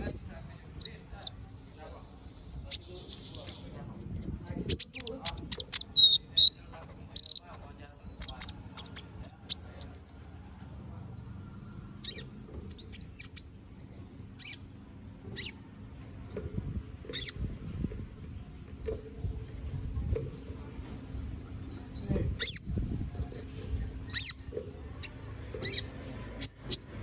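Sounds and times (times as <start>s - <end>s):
bird chirping and twittering: 0.0s - 1.4s, 2.2s - 3.8s, 4.6s - 10.2s, 12.0s - 13.5s, 14.4s - 15.7s, 17.1s - 18.0s, 21.6s - 27.0s.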